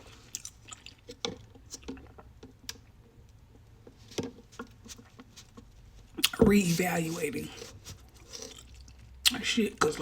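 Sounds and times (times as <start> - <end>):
person chewing food: 0.0 - 3.4, 4.7 - 9.4.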